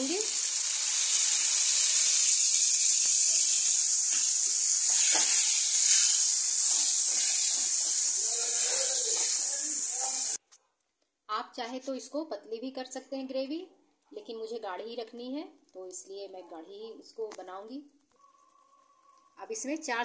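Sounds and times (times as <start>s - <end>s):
gravy sizzling in hot oil: 0.0s - 10.4s
metal spatula stirring: 4.9s - 10.0s.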